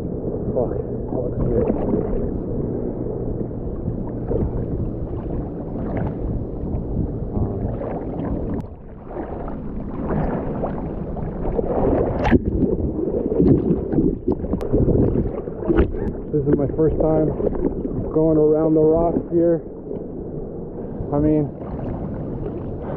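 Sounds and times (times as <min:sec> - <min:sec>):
muffled seawater sloshing: 0:00.0 - 0:22.9
water splash: 0:00.5 - 0:02.6, 0:03.4 - 0:18.2.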